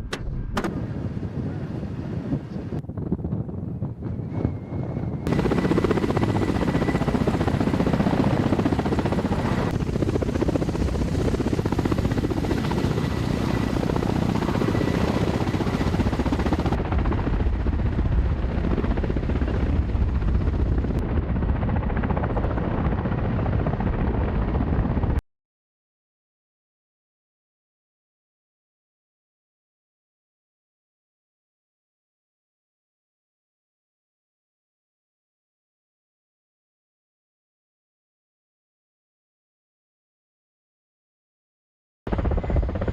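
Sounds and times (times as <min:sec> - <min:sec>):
helicopter rotor and turbine: 0:00.0 - 0:25.2, 0:42.1 - 0:42.9.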